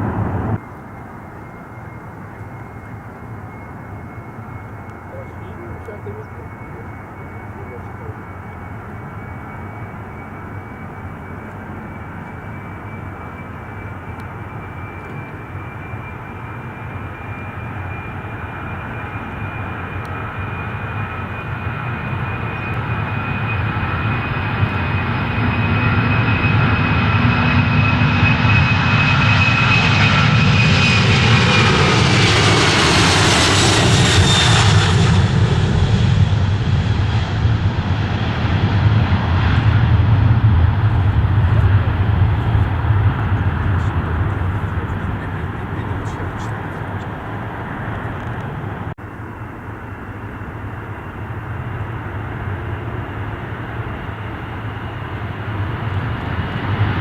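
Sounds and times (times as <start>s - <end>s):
jet airliner engines whining: 0.0s - 57.0s.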